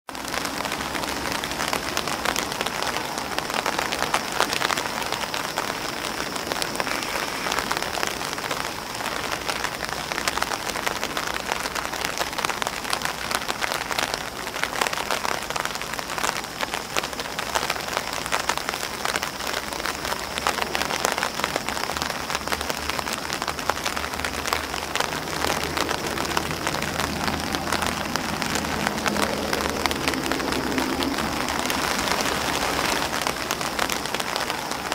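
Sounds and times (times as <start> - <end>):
rain on umbrella and grass: 0.0 - 34.9.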